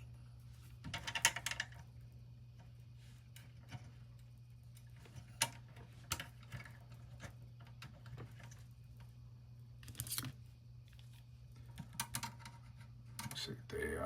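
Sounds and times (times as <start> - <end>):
steady low hum: 0.0 - 14.0
small parts clicking and tapping: 0.8 - 1.9, 11.6 - 13.5.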